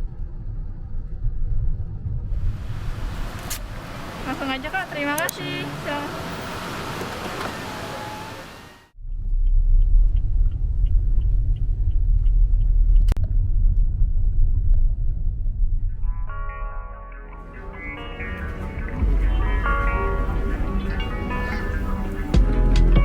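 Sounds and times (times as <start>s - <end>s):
car driving from inside cabin: 1.5s - 15.6s, 17.5s - 22.8s.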